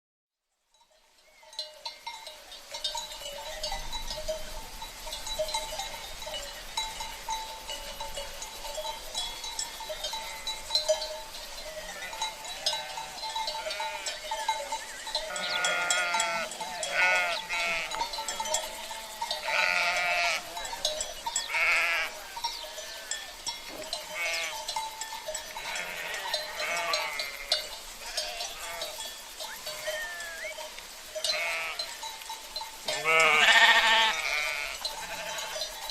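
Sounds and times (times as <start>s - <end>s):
livestock bells clanking: 0.7s - 35.9s
sheep bleating: 11.7s - 14.2s, 15.2s - 20.8s, 21.5s - 23.3s, 24.1s - 24.6s, 25.6s - 30.6s, 31.3s - 31.9s, 32.9s - 35.7s.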